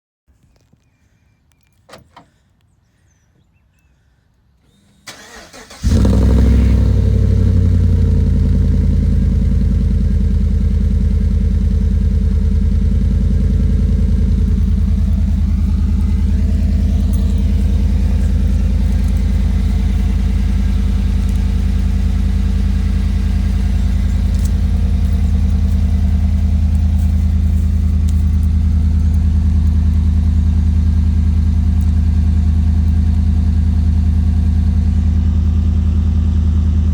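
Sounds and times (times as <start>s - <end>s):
engine starting and idling: 4.6s - 36.9s
engine cranking: 4.7s - 33.8s.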